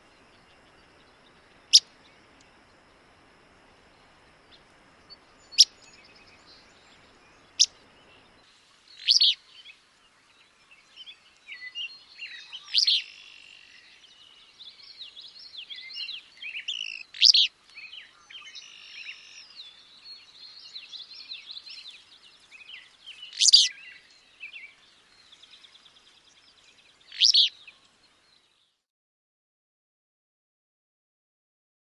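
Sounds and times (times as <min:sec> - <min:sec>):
other birds chattering: 0:22.8 - 0:23.8.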